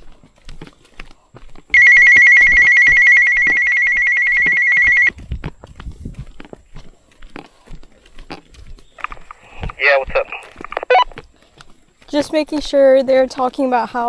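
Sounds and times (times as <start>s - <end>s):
walkie-talkie pulsing call tone: 1.8s - 5.1s, 9.0s - 11.1s.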